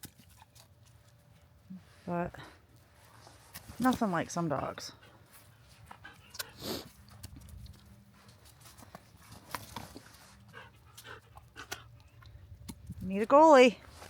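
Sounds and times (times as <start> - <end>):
dog panting: 4.8 - 7.2, 8.0 - 12.4.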